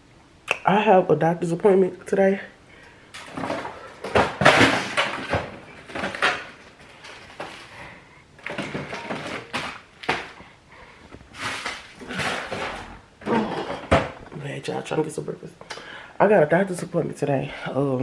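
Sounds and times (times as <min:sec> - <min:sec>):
household knocks and bumps: 0:03.2 - 0:07.7, 0:11.1 - 0:14.4.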